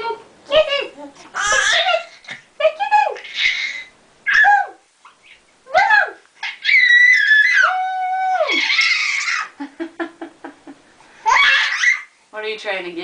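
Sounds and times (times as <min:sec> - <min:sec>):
baby squealing: 0:01.4 - 0:02.2, 0:03.2 - 0:04.5, 0:06.4 - 0:09.6, 0:11.2 - 0:12.1.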